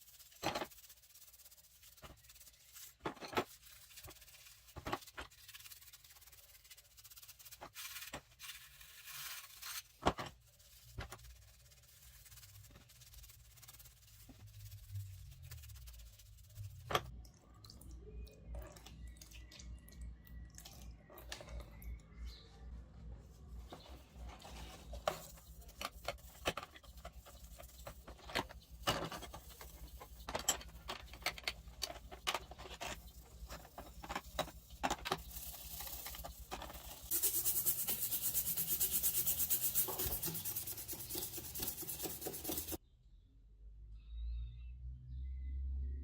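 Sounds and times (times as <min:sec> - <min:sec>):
fast rasping ticking: 0:37.1 - 0:42.8.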